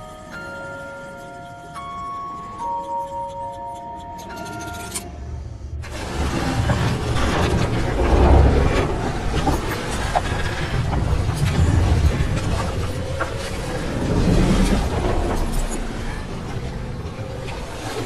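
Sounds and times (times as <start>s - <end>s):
music box tinkling: 0.0s - 5.1s
heavy low rumbling: 5.1s - 17.8s
creaks and knocks: 5.9s - 17.7s.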